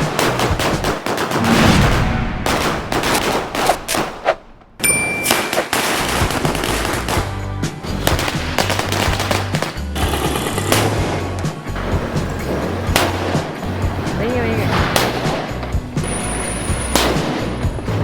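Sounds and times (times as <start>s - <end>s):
firecrackers bursting: 0.0s - 18.0s.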